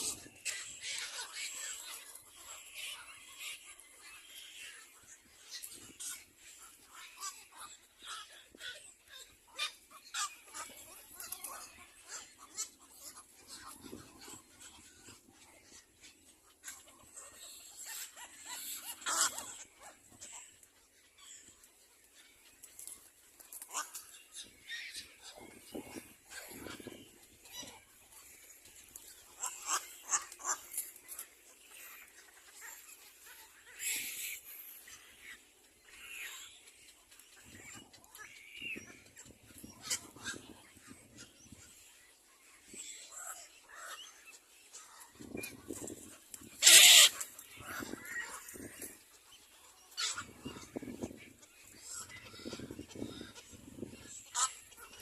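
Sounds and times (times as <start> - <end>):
cormorants calling: 0.0 - 55.0
cormorants squeaky calls: 46.5 - 49.0, 54.2 - 55.0.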